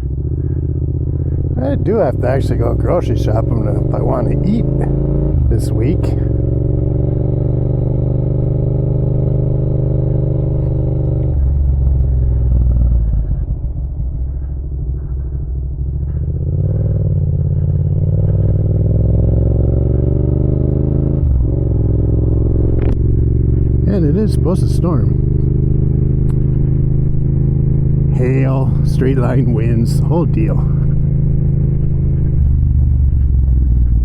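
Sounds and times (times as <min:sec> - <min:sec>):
motorcycle engine accelerating: 0:00.0 - 0:34.0.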